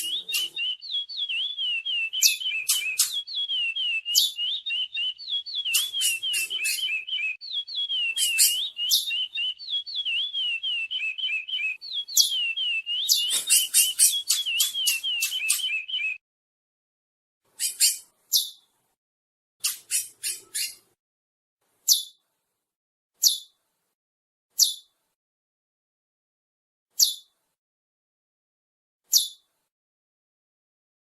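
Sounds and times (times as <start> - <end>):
finch singing looping whistles: 0.0 - 16.2.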